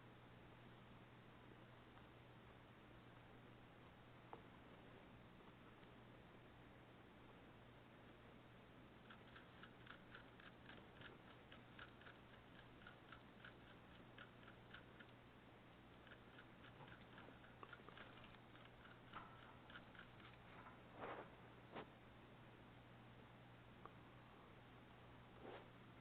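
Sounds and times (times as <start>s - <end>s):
steady low hum: 0.0s - 26.0s
small pet chewing clicks: 8.9s - 20.5s.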